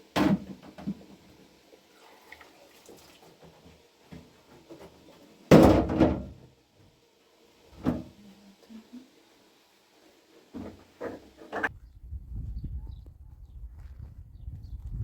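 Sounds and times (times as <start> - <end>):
loud bang of door or lid: 5.5 - 6.3.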